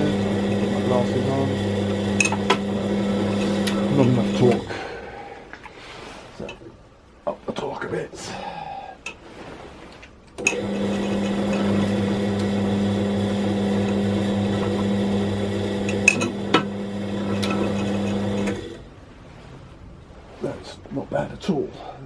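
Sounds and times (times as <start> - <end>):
machine motor hum: 0.0 - 4.9, 10.4 - 18.9.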